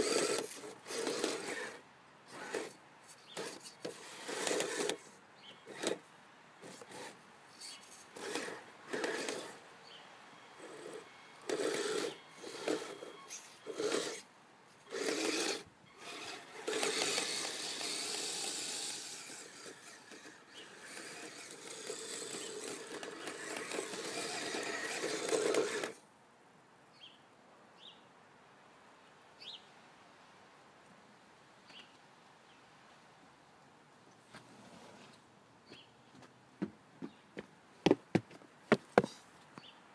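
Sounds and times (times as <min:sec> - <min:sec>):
toy vehicle motors whirring: 0:00.0 - 0:06.0, 0:06.6 - 0:09.6, 0:10.6 - 0:26.0.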